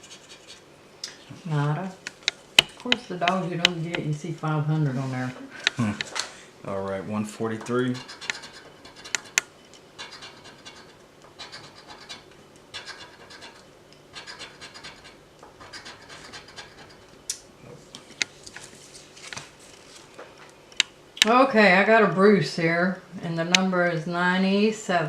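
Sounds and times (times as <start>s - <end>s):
scratching lottery ticket: 0.0s - 0.7s, 7.5s - 9.4s, 10.0s - 17.1s.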